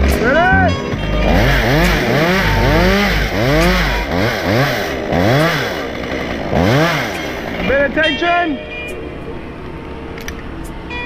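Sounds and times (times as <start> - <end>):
chainsaw engine revving: 1.0 - 8.0.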